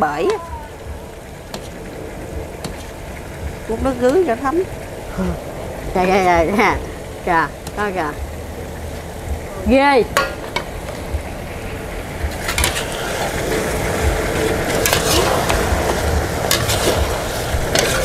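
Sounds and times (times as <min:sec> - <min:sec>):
metal spatula scraping wok: 0:01.5 - 0:01.8, 0:02.6 - 0:03.0, 0:12.3 - 0:18.0
chicken sizzling in wok: 0:12.4 - 0:18.0.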